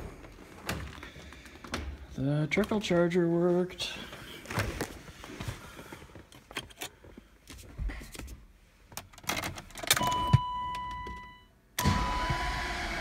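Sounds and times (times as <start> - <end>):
car electronic warning tone: 10.0 - 12.8.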